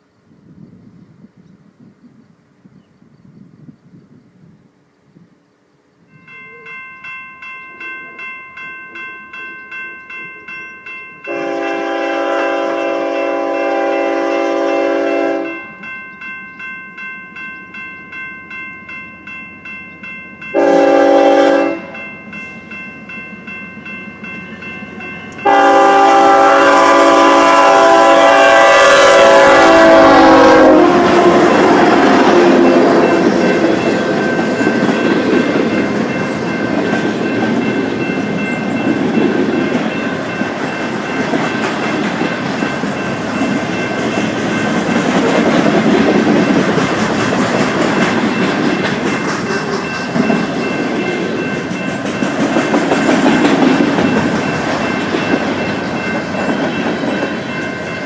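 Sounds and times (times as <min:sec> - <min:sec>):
crossing bell ringing: 0:06.1 - 0:58.0
locomotive horn blasts: 0:11.3 - 0:15.6, 0:20.5 - 0:22.0, 0:25.4 - 0:33.2
train wheels rumbling and clattering: 0:29.6 - 0:58.0.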